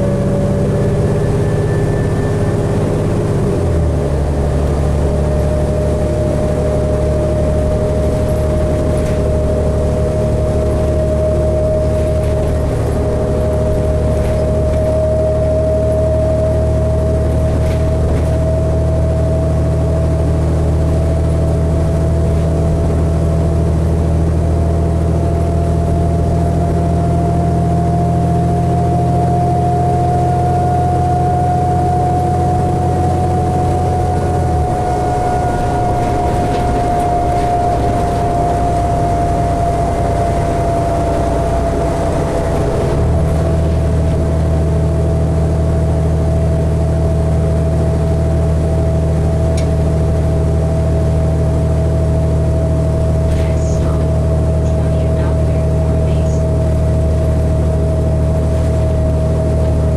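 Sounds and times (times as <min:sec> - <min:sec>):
bus engine hum: 0:00.0 - 0:59.9
rising and falling whine: 0:00.0 - 0:59.9.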